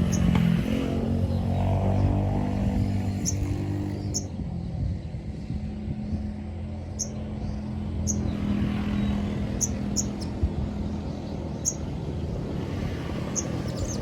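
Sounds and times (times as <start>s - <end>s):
small bird chirping: 0.0s - 1.6s, 2.9s - 4.4s, 6.8s - 10.5s, 11.1s - 11.9s, 13.2s - 14.0s
vehicle engine droning: 0.0s - 14.0s.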